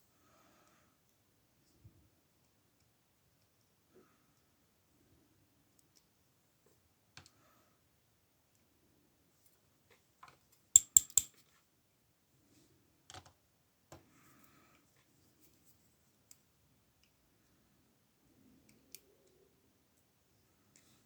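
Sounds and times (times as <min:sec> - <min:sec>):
small metal parts clicking: 0:10.8 - 0:11.4.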